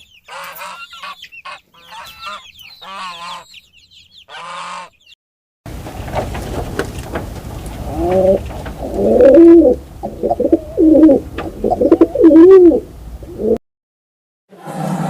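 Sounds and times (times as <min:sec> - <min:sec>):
bird calling low: 0:07.6 - 0:13.6.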